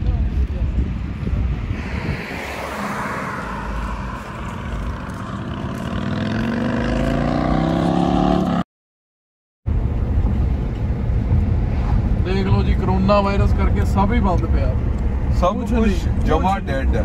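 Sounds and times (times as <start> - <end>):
road and wind noise: 0.0 - 8.6, 9.6 - 17.0
car engine accelerating: 1.6 - 8.6.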